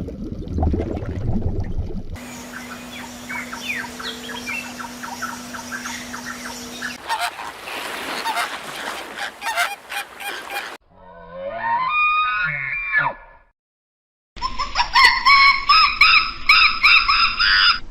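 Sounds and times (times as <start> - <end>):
birds calling: 2.2 - 10.8.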